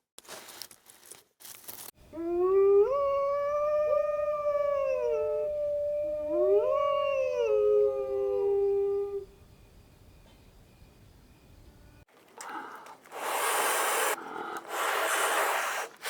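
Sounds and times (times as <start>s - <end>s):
dogs howling: 2.1s - 9.3s.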